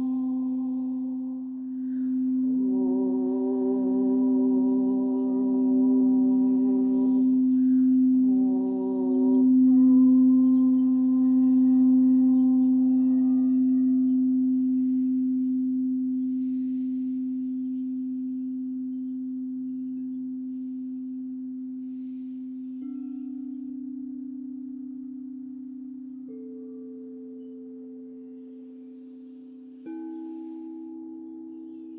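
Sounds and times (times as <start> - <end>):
singing bowl ringing: 0.0 - 31.9.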